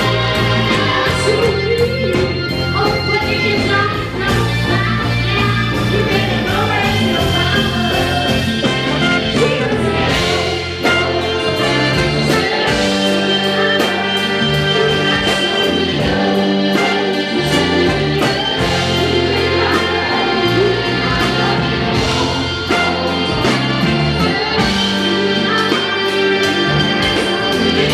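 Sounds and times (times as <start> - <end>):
bass line: 0.0 - 27.9
person singing: 0.0 - 27.9.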